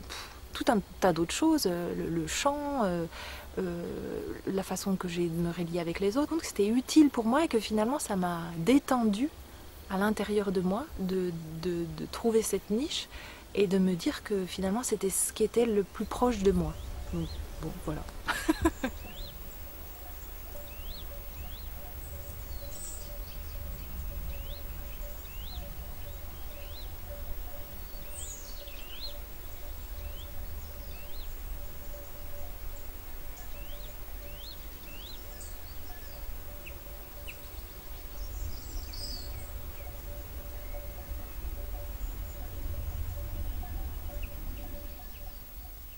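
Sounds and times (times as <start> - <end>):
faint steady hum: 0.0 - 45.9
small bird chirping: 3.6 - 45.9
low rumble: 16.0 - 45.9.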